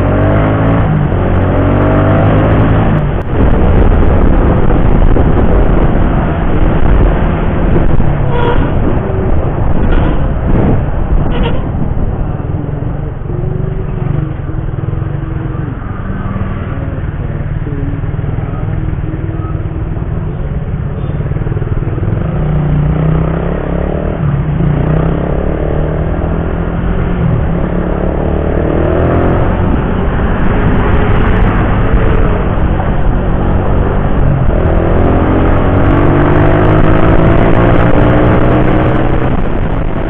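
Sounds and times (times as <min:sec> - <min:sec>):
wind rush on microphone: 0:00.0 - 0:40.0.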